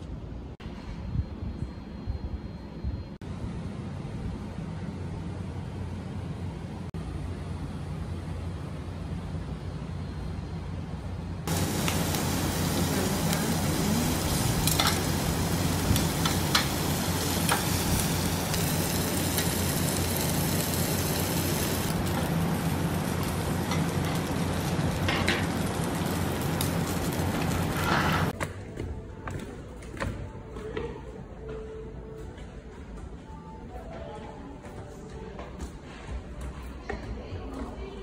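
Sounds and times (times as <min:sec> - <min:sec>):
steady low hum: 0:00.0 - 0:38.0
meat sizzling on a grill: 0:11.5 - 0:28.3
metal tongs clicking on grill: 0:14.2 - 0:15.2, 0:15.9 - 0:17.8.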